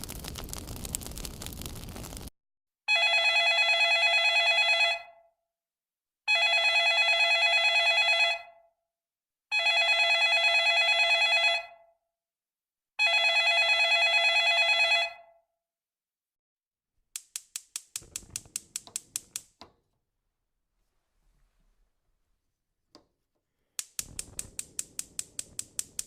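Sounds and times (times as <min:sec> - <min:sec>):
telephone ringing: 0:02.9 - 0:05.2, 0:06.3 - 0:08.6, 0:09.5 - 0:11.8, 0:13.0 - 0:15.3.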